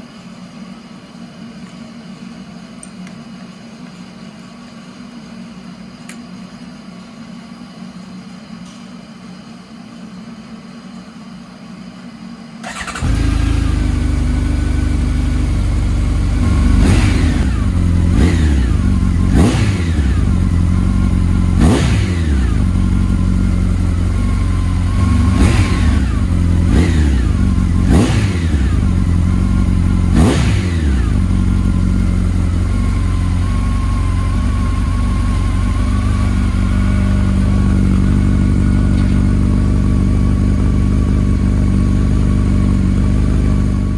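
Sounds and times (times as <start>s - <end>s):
engine idling with throttle blips: 10.1s - 43.9s
motorcycle engine starting: 12.6s - 43.9s.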